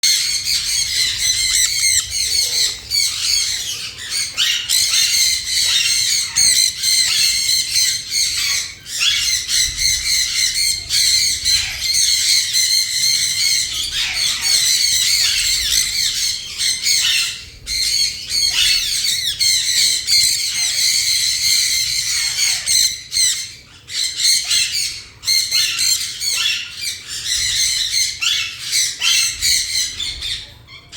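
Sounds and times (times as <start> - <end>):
parrots squawking: 0.0 - 30.9.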